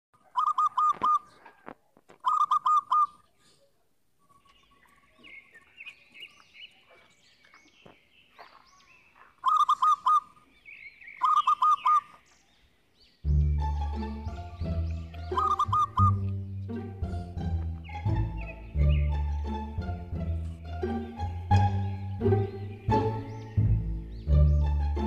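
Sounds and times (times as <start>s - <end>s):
bird call bursts of quick notes: 0.3s - 1.4s, 2.2s - 3.3s, 9.4s - 10.4s, 11.0s - 12.2s, 13.2s - 25.0s
faint twittering chirps: 2.2s - 16.8s.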